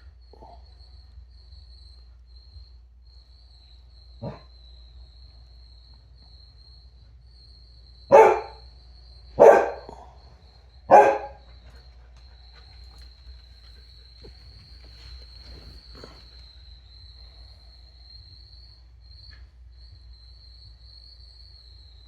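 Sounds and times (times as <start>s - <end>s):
dog barking: 0.3s - 0.6s, 4.2s - 4.5s, 8.1s - 8.7s, 9.3s - 10.2s, 10.8s - 11.8s.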